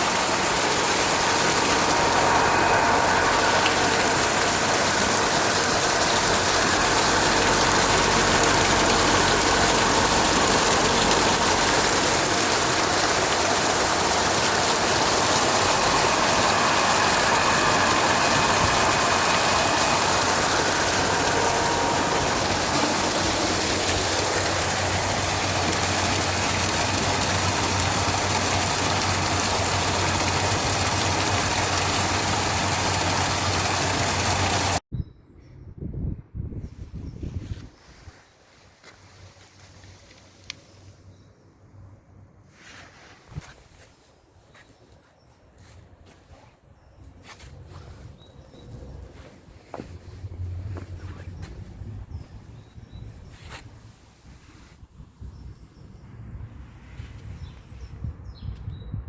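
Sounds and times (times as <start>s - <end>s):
electric motor hum: 0.0s - 34.8s
water rushing through pump: 0.0s - 34.8s.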